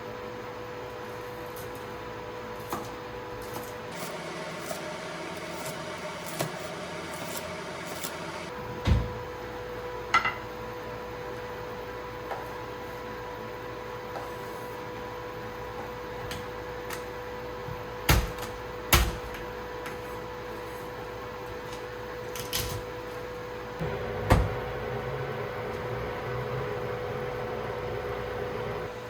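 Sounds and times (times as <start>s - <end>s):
steady electrical hum: 0.0s - 29.0s
lower hum: 23.8s - 29.0s.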